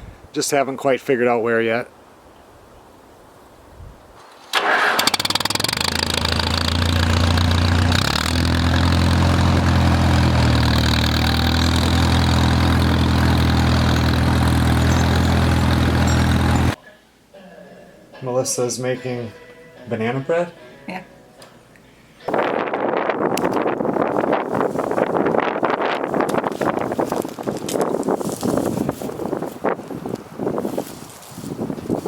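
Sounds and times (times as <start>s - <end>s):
tractor engine cranking and running: 4.2s - 16.8s.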